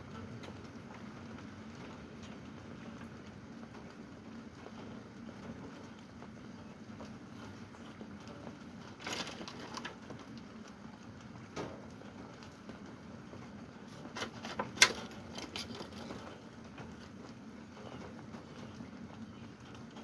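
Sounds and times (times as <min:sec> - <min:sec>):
raindrops tapping: 0:00.0 - 0:20.0
steady rain: 0:00.0 - 0:20.0.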